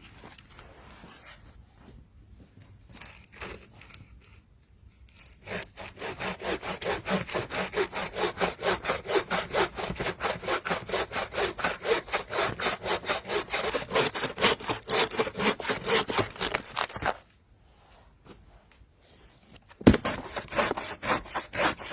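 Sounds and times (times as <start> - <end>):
handsaw cutting wood: 5.4 - 16.9, 19.9 - 21.9.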